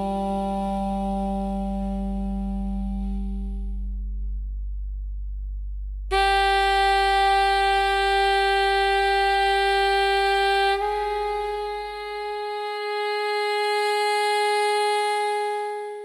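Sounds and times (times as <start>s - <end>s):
steady musical tone: 0.0s - 16.0s.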